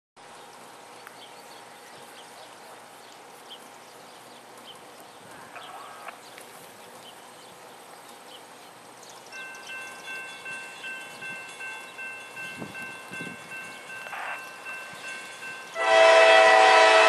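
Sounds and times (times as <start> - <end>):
distant freight train: 5.2 - 17.0.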